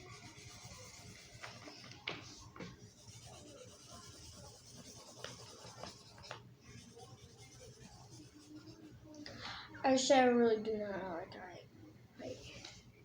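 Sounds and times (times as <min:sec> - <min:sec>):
marker scratching on paper: 0:00.0 - 0:09.0.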